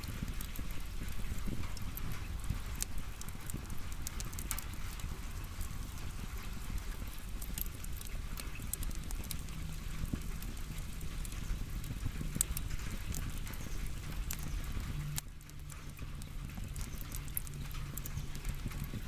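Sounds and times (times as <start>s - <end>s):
firewood crackling: 0.0s - 19.0s.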